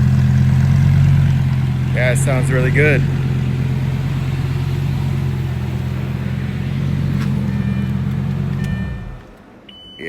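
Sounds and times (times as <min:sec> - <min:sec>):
sports car engine idling: 0:00.0 - 0:09.6.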